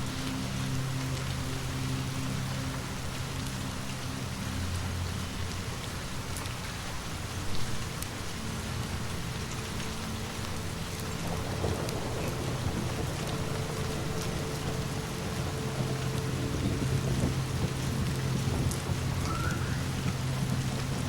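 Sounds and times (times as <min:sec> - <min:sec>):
faint crackles: 0:00.0 - 0:21.0
steady rain falling: 0:00.0 - 0:21.0
distant thunder rumble: 0:08.8 - 0:21.0.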